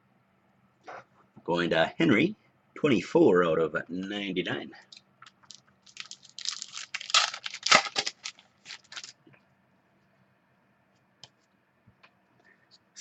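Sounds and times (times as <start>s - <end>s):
faint steady hum: 0.0s - 13.0s
cards and plastic sleeves rustling: 4.9s - 9.2s.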